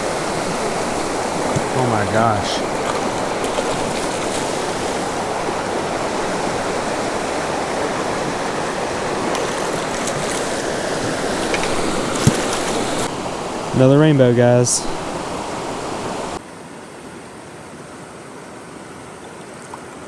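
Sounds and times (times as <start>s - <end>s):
water rushing over small waterfall: 0.0s - 16.4s.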